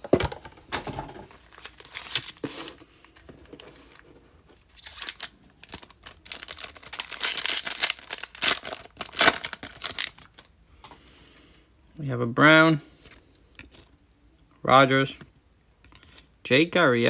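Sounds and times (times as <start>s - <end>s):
foil wrapper tearing and crinkling: 1.4s - 2.8s, 4.6s - 10.5s.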